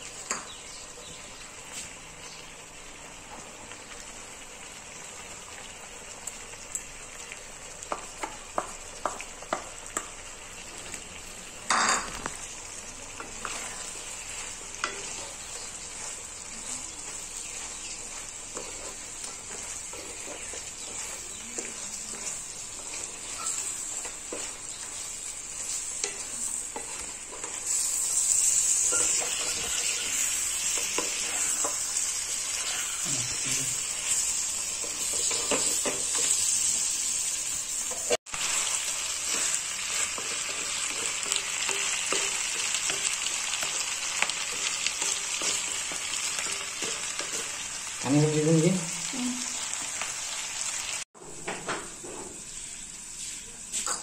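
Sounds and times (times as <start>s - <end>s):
meat sizzling in a wok: 0.0s - 54.0s
spatula scraping a wok: 13.2s - 48.0s.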